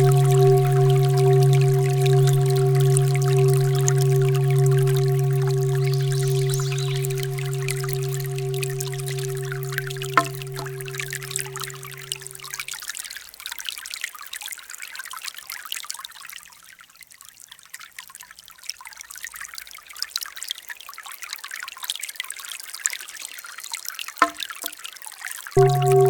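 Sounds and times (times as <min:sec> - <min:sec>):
short tone: 0:00.0 - 0:12.4, 0:25.6 - 0:26.0.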